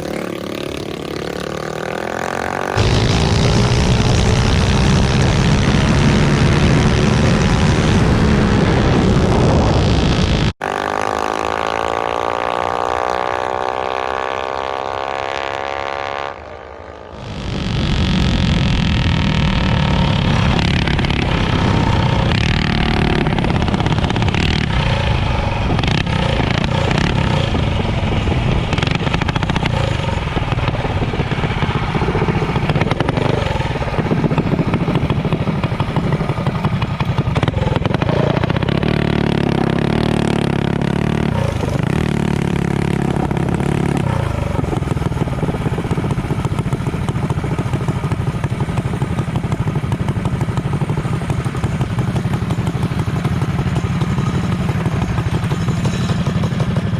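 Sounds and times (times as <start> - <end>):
motorcycle engine running loudly: 0.0 - 56.9.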